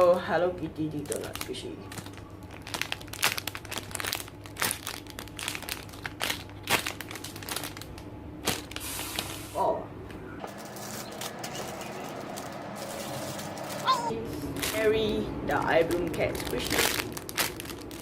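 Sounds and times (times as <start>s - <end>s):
toys crinkling and rustling: 0.9s - 9.5s, 10.4s - 15.0s, 15.6s - 18.0s
person exclaiming: 13.8s - 14.3s
quick clicks and crackles: 15.9s - 18.0s.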